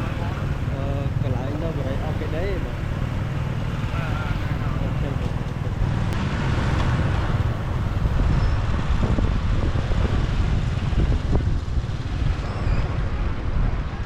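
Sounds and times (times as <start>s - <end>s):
city traffic noise: 0.0s - 14.0s
wind rumble on microphone: 4.8s - 14.0s.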